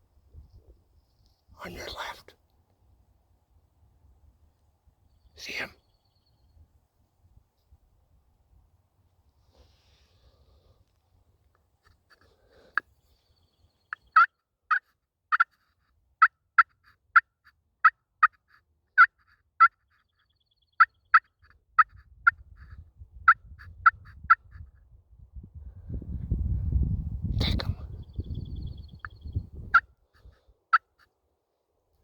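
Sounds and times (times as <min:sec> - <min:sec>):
turkey clucking: 0:13.9 - 0:14.3.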